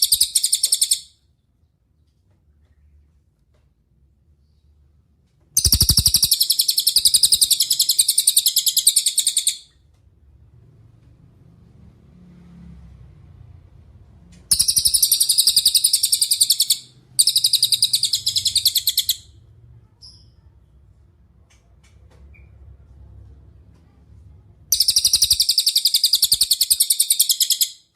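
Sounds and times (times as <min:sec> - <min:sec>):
songbird fast trills: 0:00.0 - 0:01.1, 0:05.6 - 0:09.6, 0:14.5 - 0:19.3, 0:24.7 - 0:27.8.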